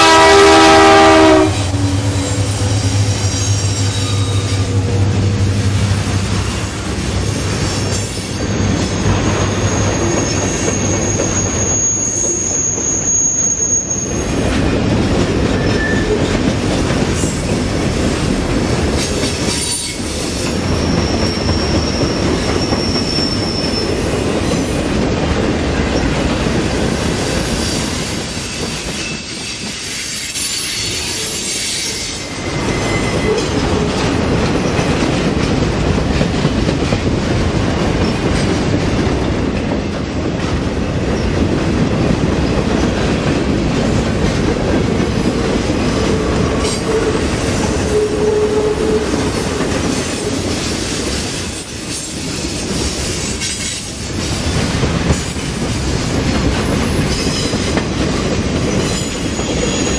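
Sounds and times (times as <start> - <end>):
freight cars rumbling on rails: 0.0 - 59.9
wheel squeal: 1.8 - 4.8, 7.7 - 14.4, 15.6 - 16.3, 19.5 - 24.1, 27.5 - 34.1, 58.8 - 59.9.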